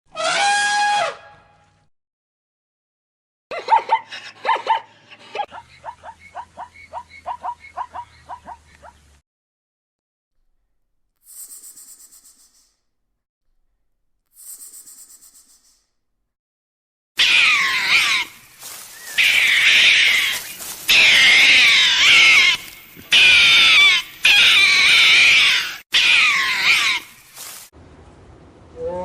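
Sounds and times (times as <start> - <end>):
high-pitched animal calls: 3.5 - 9.0, 17.2 - 27.2.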